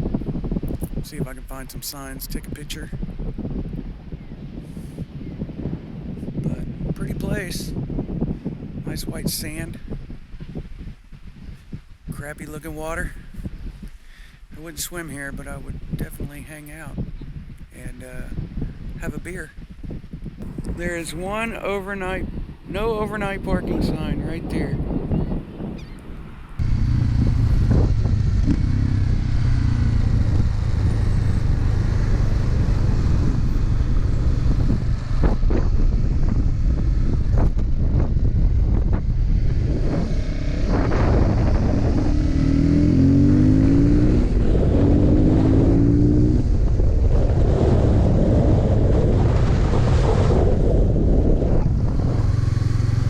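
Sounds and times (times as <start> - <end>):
wind rush on microphone: 0.0 - 53.0
motorcycle engine running: 26.6 - 49.0, 51.0 - 53.0.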